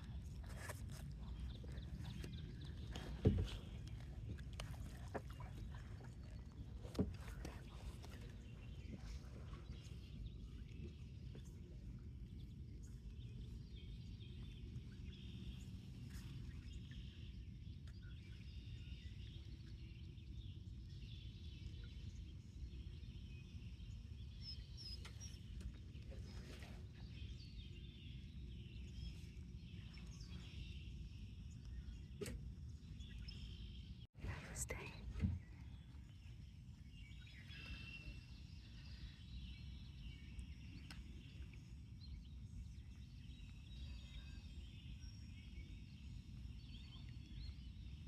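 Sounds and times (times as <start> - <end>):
steady low rumble: 0.0 - 15.8
faint bird chirps: 21.3 - 48.0.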